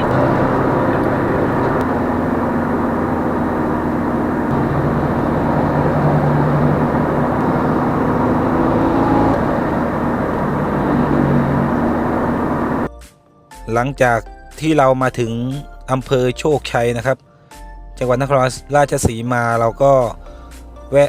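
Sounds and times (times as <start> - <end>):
car engine cruising: 0.0 - 12.9
road noise: 0.0 - 12.9.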